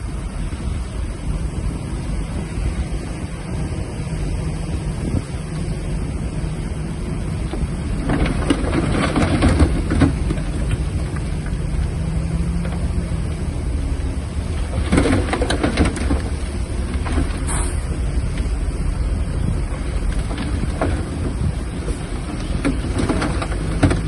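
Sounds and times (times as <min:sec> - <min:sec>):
bulldozer diesel engine running: 0:00.0 - 0:24.0.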